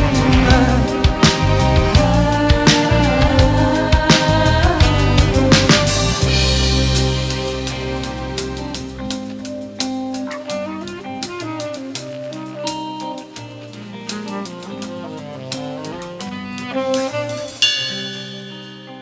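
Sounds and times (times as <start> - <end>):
live band playing a ballad: 0.0 - 19.0.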